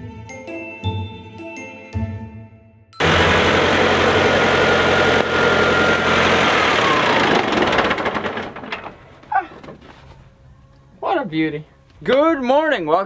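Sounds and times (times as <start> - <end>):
tractor engine running: 3.0 - 9.3.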